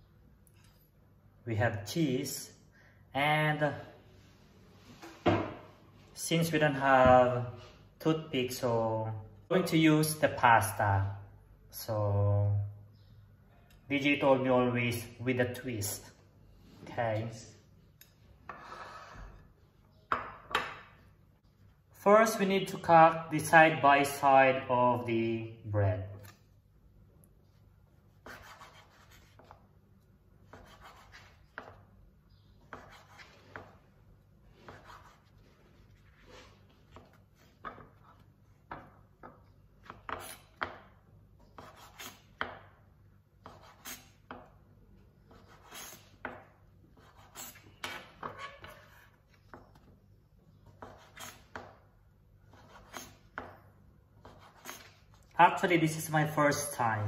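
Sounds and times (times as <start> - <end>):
knife cutting bread on wooden board: 28.2 - 29.6, 30.4 - 31.8, 32.6 - 33.8, 34.5 - 42.6, 43.4 - 44.5, 50.6 - 51.8, 52.5 - 53.6, 54.2 - 55.0.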